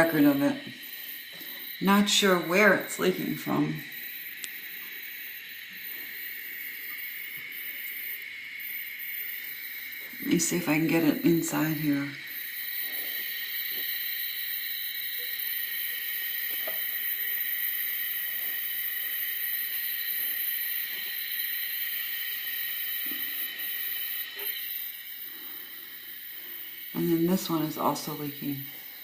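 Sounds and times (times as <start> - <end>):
water hissing in toilet tank: 0.0 - 29.0
faint ticks: 3.9 - 10.2, 16.5 - 17.0.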